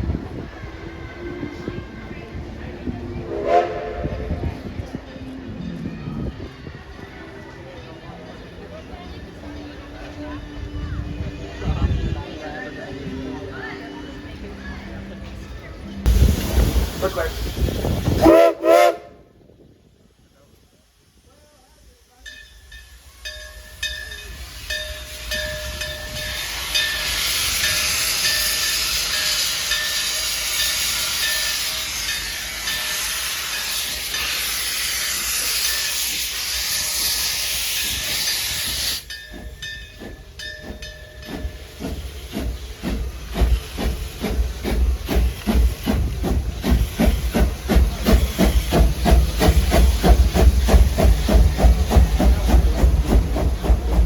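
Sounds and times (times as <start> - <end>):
steam hissing: 16.1 - 19.0, 19.8 - 54.0
steam locomotive exhaust chuffs: 16.1 - 54.0.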